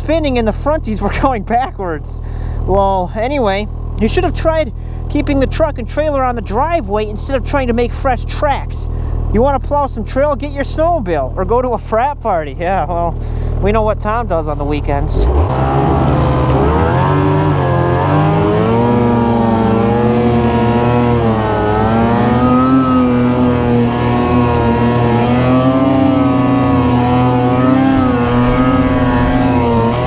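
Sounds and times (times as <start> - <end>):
snowmobile engine revving: 14.8 - 30.0.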